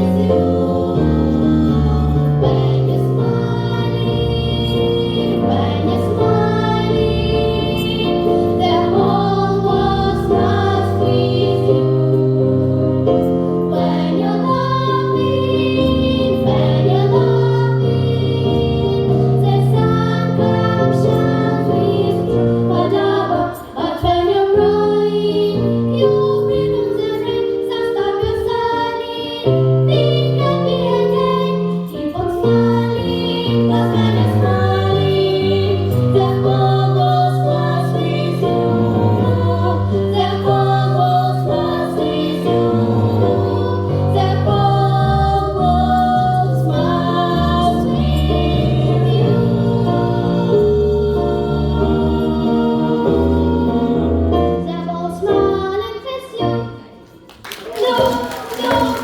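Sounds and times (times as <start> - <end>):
vocal ensemble singing swing song: 0.0 - 55.8, 57.5 - 59.0.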